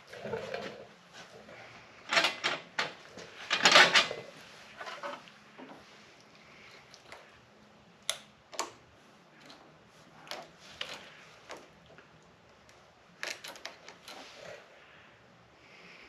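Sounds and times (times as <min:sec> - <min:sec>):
hand tools clicking and knocking: 0:02.1 - 0:04.3.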